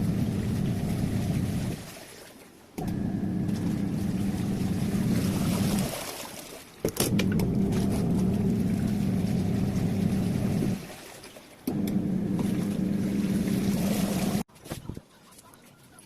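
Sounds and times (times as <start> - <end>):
washing machine motor swishing: 0.0 - 2.0, 2.8 - 6.2, 7.0 - 11.0, 11.7 - 14.5
washing machine clicks: 6.9 - 10.8, 11.7 - 14.4.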